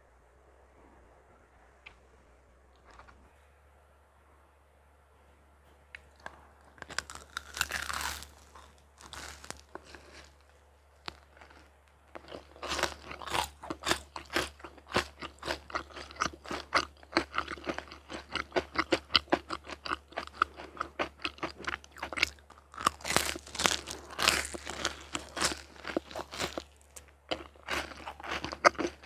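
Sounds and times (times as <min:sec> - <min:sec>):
person crunching crisp food: 0:06.0 - 0:29.0.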